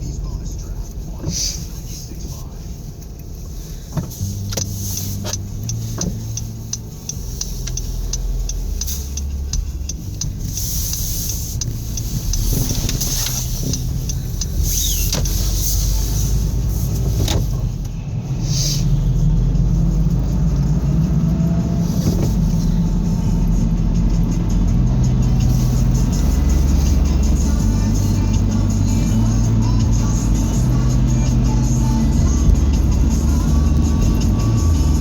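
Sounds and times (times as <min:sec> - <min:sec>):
car engine humming: 0:00.0 - 0:35.0
sharp clicks and knocks: 0:03.9 - 0:15.4.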